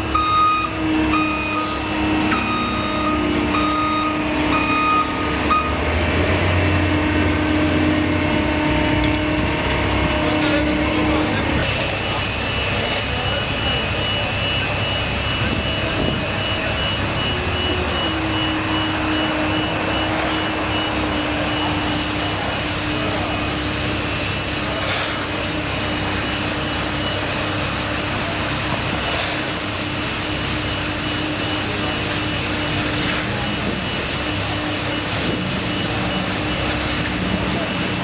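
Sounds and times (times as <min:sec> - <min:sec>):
machine drone: 0:00.0 - 0:38.0.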